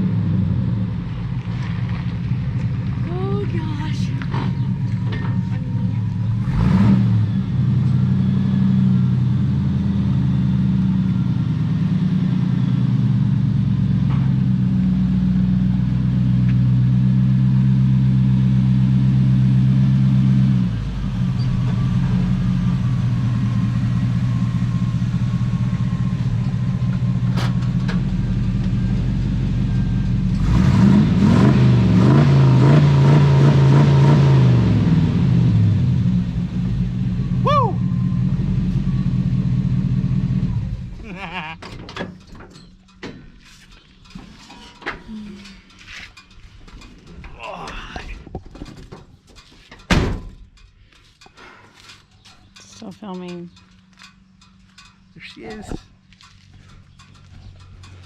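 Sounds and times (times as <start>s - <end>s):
vehicle engine running and revving: 0.0s - 41.2s.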